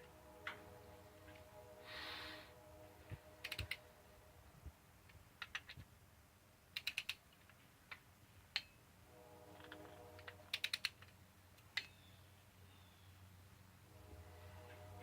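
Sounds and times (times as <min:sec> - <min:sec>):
hand ratchet clicking: 0:03.4 - 0:03.8, 0:06.8 - 0:07.2, 0:10.5 - 0:12.0.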